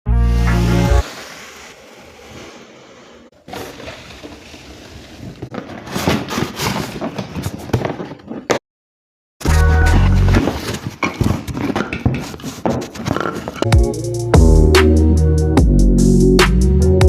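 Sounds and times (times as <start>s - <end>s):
packaging rustling and crinkling: 3.4s - 8.1s, 10.0s - 13.6s.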